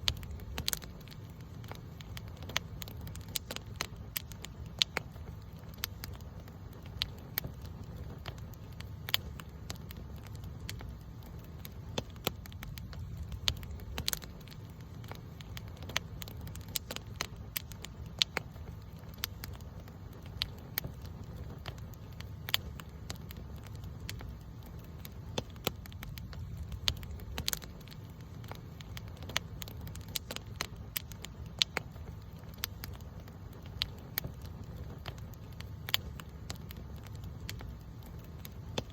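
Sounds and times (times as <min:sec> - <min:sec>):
campfire crackling and popping: 0:00.0 - 0:38.9
low fire rumble: 0:00.0 - 0:38.9.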